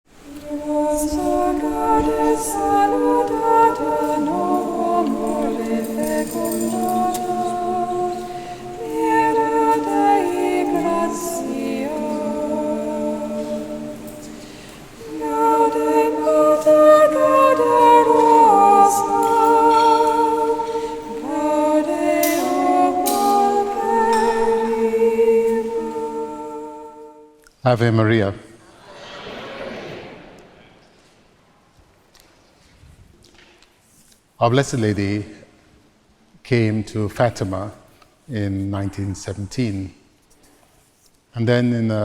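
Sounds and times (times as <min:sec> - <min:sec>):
choir singing in harmony: 0:00.1 - 0:27.4, 0:28.6 - 0:30.8.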